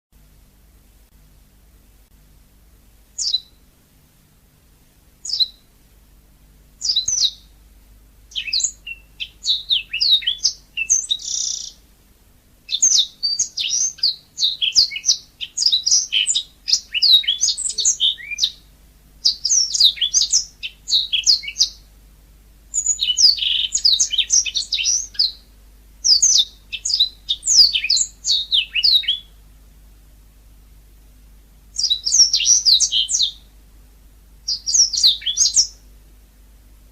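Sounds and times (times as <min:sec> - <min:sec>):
canary singing: 0:03.2 - 0:03.6, 0:05.2 - 0:05.7, 0:06.8 - 0:07.6, 0:08.3 - 0:11.8, 0:12.7 - 0:21.9, 0:22.7 - 0:29.4, 0:31.7 - 0:33.5, 0:34.4 - 0:35.9.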